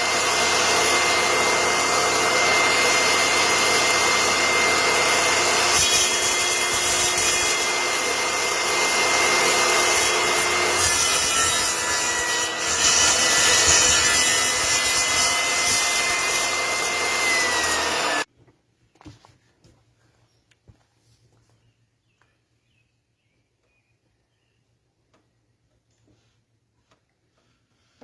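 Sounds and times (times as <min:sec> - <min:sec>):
woodworking power tool whining: 0:00.0 - 0:18.3.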